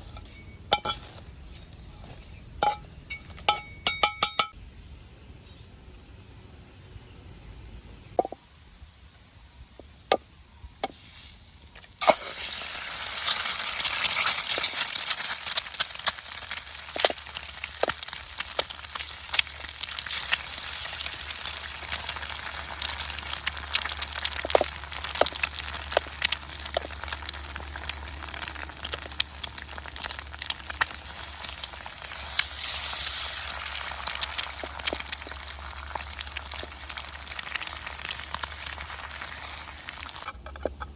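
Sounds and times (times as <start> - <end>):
food sizzling in hot pan: 11.0 - 40.3.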